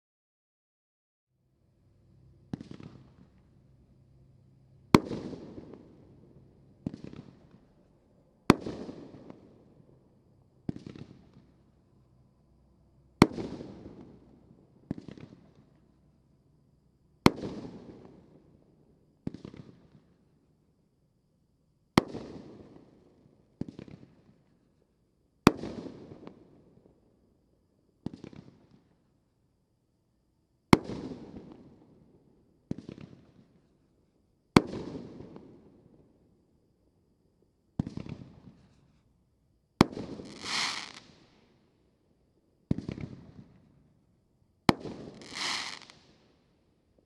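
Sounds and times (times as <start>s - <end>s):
firework bangs: 39.8s - 41.2s, 44.7s - 46.0s.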